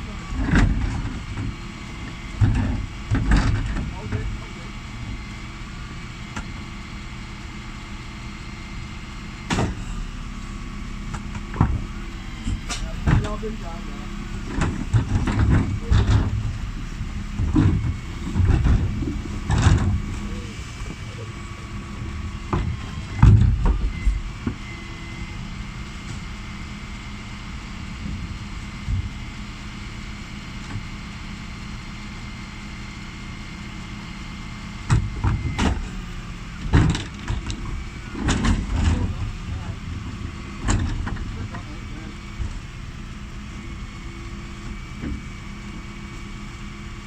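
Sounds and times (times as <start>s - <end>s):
refuse truck engine whine: 0.0s - 47.0s
bins knocking and clattering: 17.3s - 20.3s, 36.6s - 39.6s.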